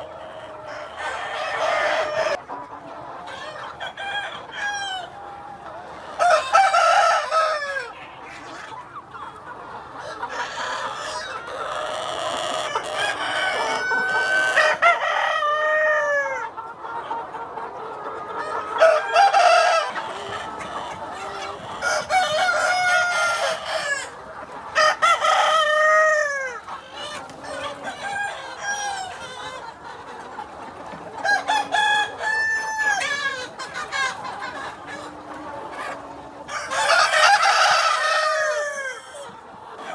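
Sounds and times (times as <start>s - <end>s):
chickens clucking: 0.0s - 39.9s
rooster crowing: 6.2s - 7.9s, 36.5s - 39.0s.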